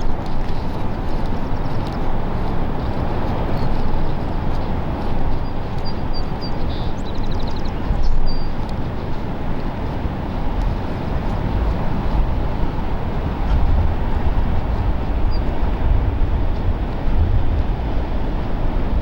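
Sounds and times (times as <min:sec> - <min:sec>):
coastal wind: 0:00.0 - 0:19.0
ocean noise: 0:00.0 - 0:19.0
wind buffeting microphone: 0:00.0 - 0:19.0
bird chirping: 0:05.4 - 0:08.6.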